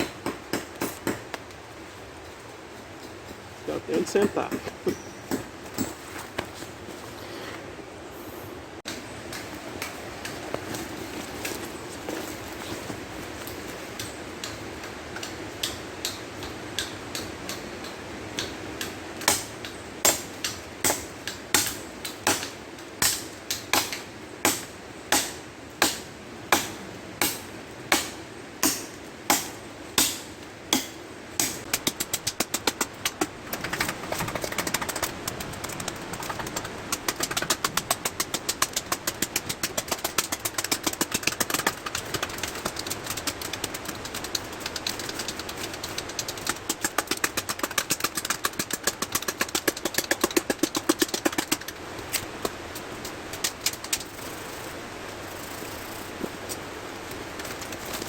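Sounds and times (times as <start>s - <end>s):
hand tool knocking: 3.9s - 6.0s, 31.7s - 51.7s.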